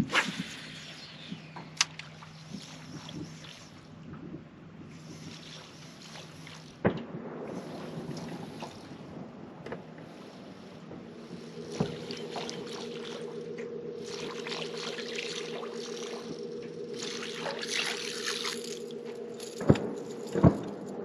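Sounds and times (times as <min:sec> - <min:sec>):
sharp click: 0:01.6 - 0:02.1
boat motor humming: 0:07.6 - 0:21.0
water splashing and rushing: 0:11.4 - 0:20.7.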